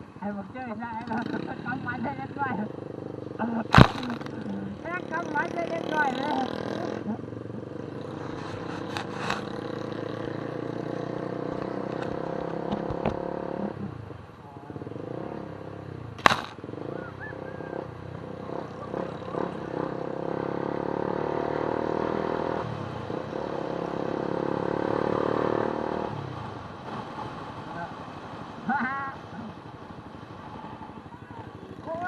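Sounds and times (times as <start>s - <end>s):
engine running: 0.0s - 32.0s
sharp click: 16.2s - 16.6s.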